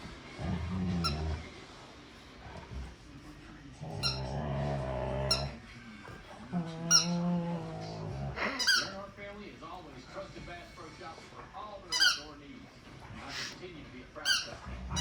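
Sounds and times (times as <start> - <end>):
dog grumbling: 0.0 - 1.7, 2.3 - 9.1, 12.9 - 13.6, 14.2 - 15.0
high squeaks: 8.6 - 9.0, 12.0 - 12.3.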